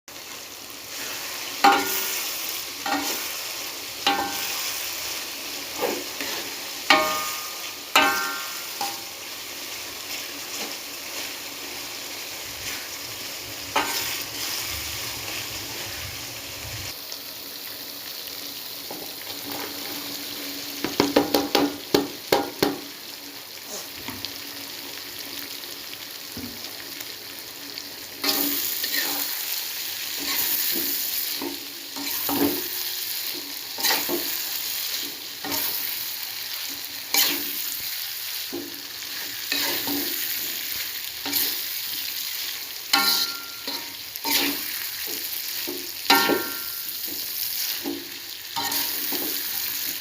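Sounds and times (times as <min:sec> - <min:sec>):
food sizzling in a pan: 0:00.1 - 0:50.0
metal spatula clanking on pan: 0:01.6 - 0:02.2, 0:02.8 - 0:03.2, 0:04.0 - 0:04.5, 0:06.2 - 0:09.1, 0:13.8 - 0:14.0, 0:42.9 - 0:47.2, 0:48.6 - 0:49.4.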